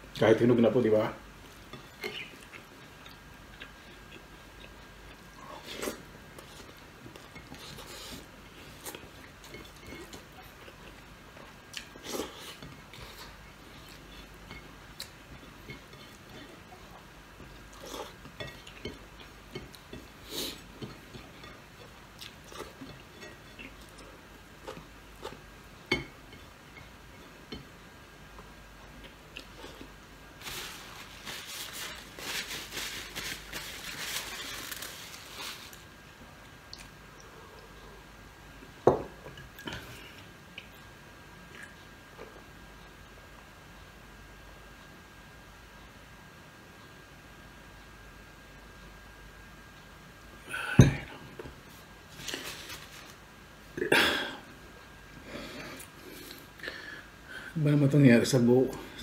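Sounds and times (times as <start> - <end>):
person chewing: 2.0 - 17.0, 17.6 - 25.4, 28.4 - 30.1.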